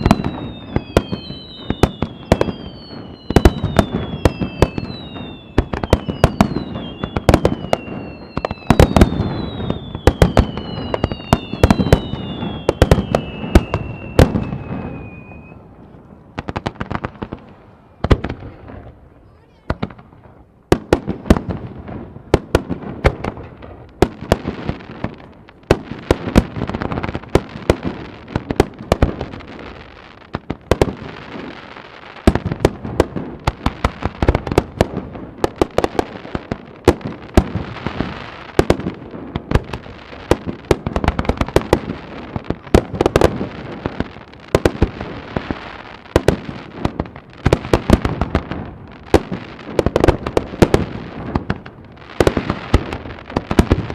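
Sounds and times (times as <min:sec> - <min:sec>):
fireworks bangs and crackles: 0:00.0 - 0:53.9
fireworks rumble: 0:00.0 - 0:53.9.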